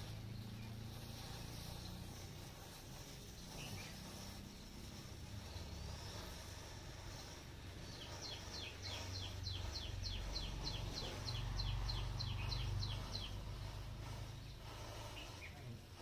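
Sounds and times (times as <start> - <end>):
low steady rumble: 0.0 - 16.0
bird chirping rapidly: 3.0 - 6.1, 7.2 - 15.6.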